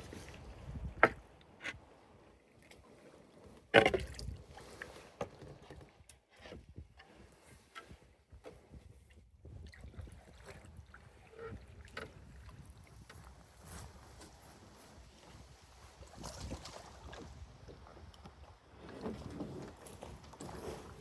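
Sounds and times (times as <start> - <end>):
water sloshing around canoe: 0.0 - 21.0
knocks on canoe: 0.9 - 1.2.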